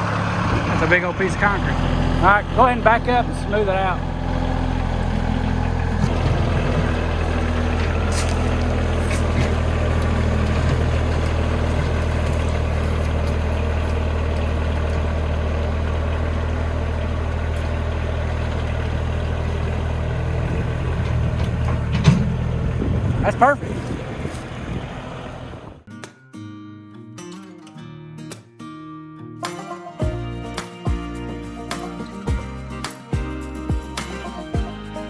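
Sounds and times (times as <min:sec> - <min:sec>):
vehicle engine running: 0:00.0 - 0:25.9.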